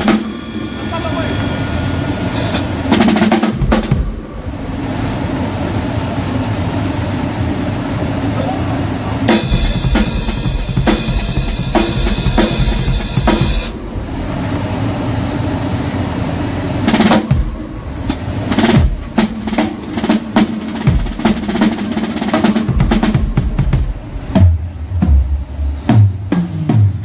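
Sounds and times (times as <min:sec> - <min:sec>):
drum kit playing: 0:00.0 - 0:01.3, 0:02.2 - 0:04.6, 0:09.3 - 0:14.0, 0:16.8 - 0:27.0.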